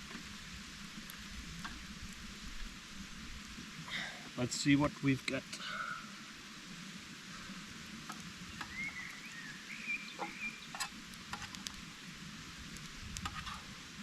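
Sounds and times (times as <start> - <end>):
food sizzling over embers: 0.0 - 14.0
thin wavering whistle: 8.7 - 10.6.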